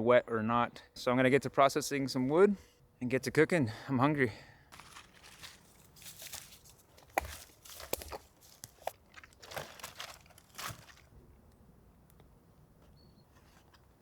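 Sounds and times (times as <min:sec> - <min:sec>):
twigs crunching and rustling: 0:04.7 - 0:11.2.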